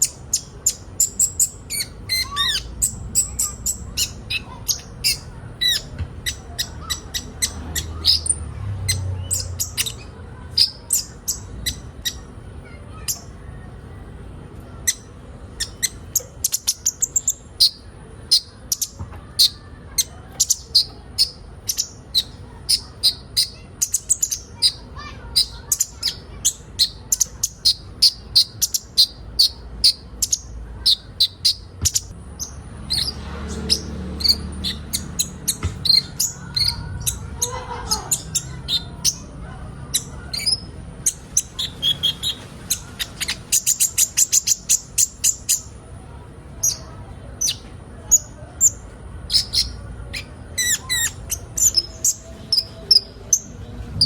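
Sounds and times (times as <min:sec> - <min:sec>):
sunbirds chirping: 0:00.0 - 0:14.1, 0:14.7 - 0:54.0.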